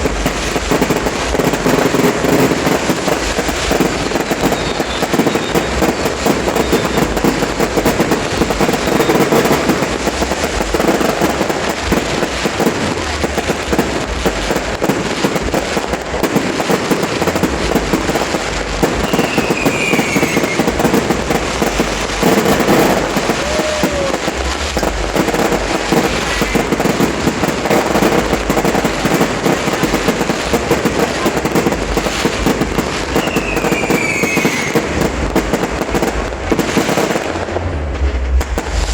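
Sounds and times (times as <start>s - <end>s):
fireworks bangs and crackling: 0.0s - 38.9s
fireworks falling whistles: 0.0s - 38.9s.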